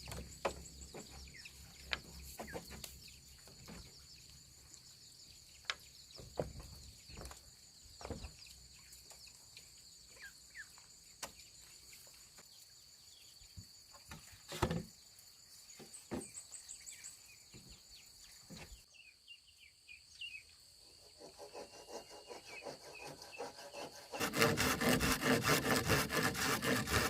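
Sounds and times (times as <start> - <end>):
bird chirps: 0.0 - 24.0.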